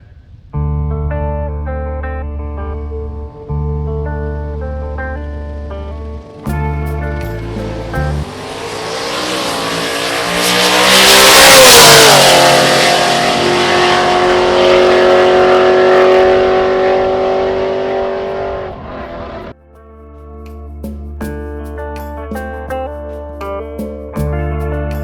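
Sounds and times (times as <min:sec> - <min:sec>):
music: 0:00.6 - 0:08.3, 0:19.5 - 0:25.0
truck engine at full throttle: 0:05.6 - 0:19.5.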